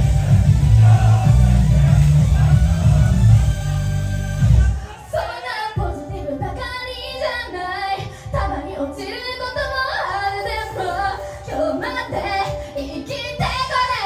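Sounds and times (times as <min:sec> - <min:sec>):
women singing pop song: 0:00.0 - 0:03.6, 0:04.6 - 0:14.0
backing track with low beat: 0:00.0 - 0:04.9.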